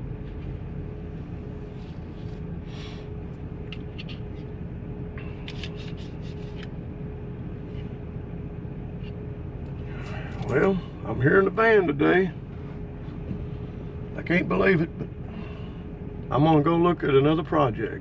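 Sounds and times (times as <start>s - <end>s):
constant hum: 0.0s - 18.0s
van engine rumble: 0.0s - 18.0s.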